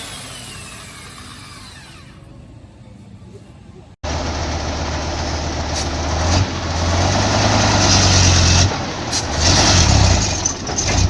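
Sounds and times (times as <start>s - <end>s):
diesel engine running loud: 4.0s - 11.0s.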